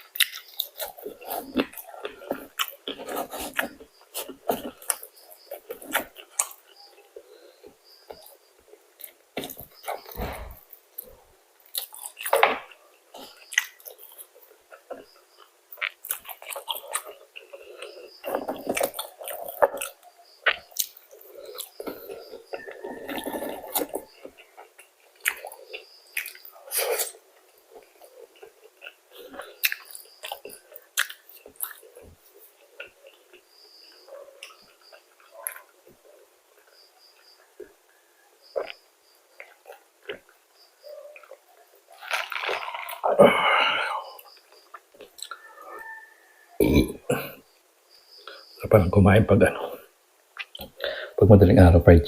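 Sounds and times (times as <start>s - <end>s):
person chewing and biting food: 0.0s - 7.0s, 8.1s - 33.5s, 41.2s - 45.5s
crisp crackles: 41.4s - 43.1s.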